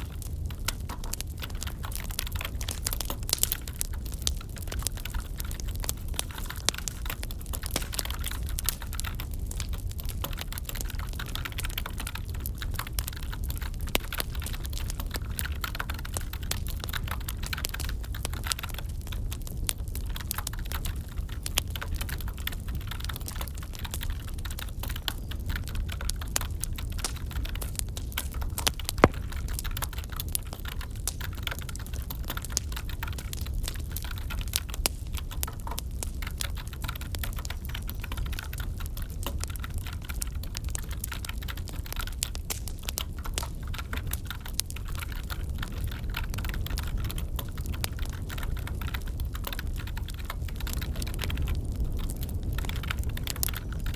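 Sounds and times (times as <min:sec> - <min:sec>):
wood fire crackling: 0:00.0 - 0:53.9
sharp fire crack: 0:22.7 - 0:53.9.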